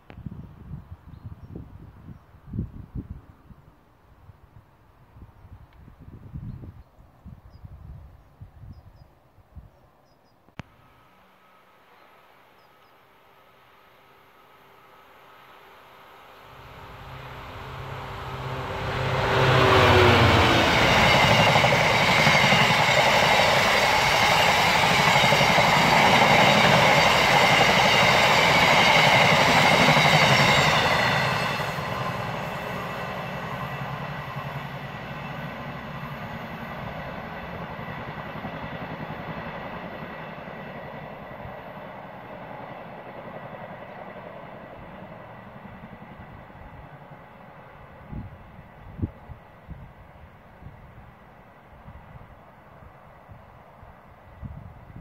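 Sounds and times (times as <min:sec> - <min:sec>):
train passing at speed: 0:10.7 - 0:55.0.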